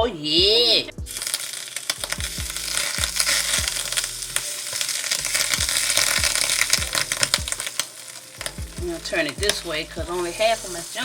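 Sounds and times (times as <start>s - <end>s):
sandwiches sizzling in butter: 1.1s - 11.0s.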